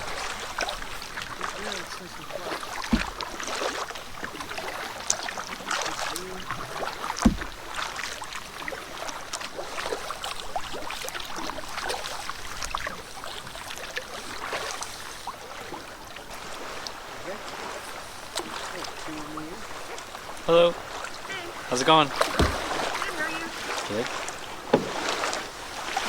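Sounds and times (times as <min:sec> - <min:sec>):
paddle splashing water: 0:00.0 - 0:26.0
dull knocks: 0:02.6 - 0:03.9, 0:06.5 - 0:08.2, 0:22.1 - 0:23.2, 0:24.6 - 0:25.4.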